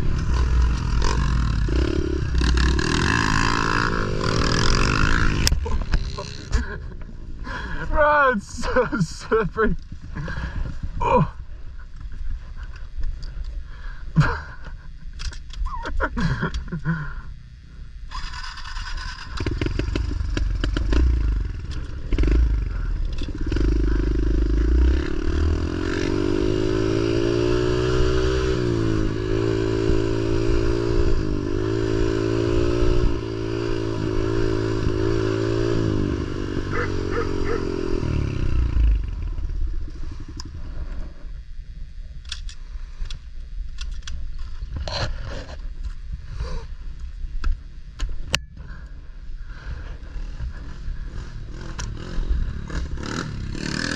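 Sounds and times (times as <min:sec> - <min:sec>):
pit bike engine revving: 0:00.0 - 0:09.4, 0:18.1 - 0:40.8, 0:49.5 - 0:53.9.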